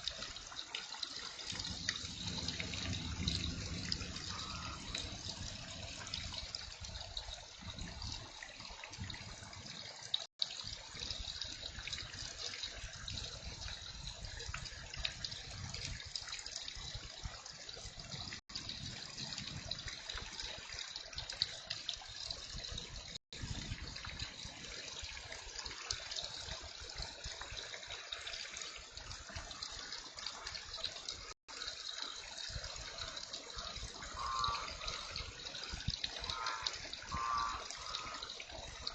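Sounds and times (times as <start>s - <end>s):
water running and trickling: 0.0s - 38.9s
heavy rain falling: 1.3s - 6.6s.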